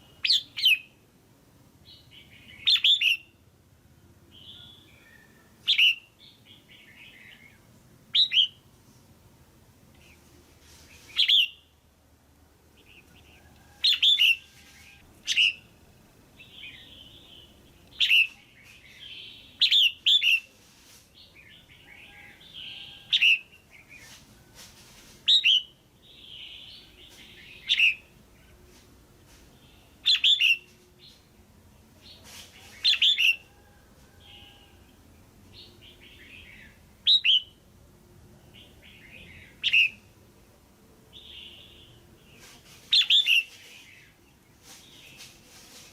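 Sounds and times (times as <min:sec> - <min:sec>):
bird chirping: 0:00.0 - 0:01.0, 0:01.8 - 0:03.4, 0:04.3 - 0:08.7, 0:09.9 - 0:11.7, 0:12.8 - 0:15.8, 0:16.4 - 0:20.5, 0:25.2 - 0:28.6, 0:29.5 - 0:31.3, 0:32.0 - 0:33.5, 0:34.2 - 0:37.6, 0:38.4 - 0:40.1, 0:41.1 - 0:45.4
soft bird chatter: 0:09.9 - 0:11.7, 0:16.4 - 0:37.6, 0:41.1 - 0:45.9.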